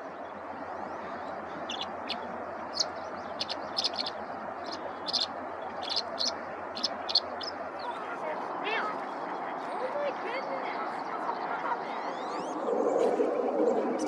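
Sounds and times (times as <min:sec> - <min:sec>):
steady background hiss: 0:00.0 - 0:07.9
songbird chirping: 0:00.0 - 0:09.1.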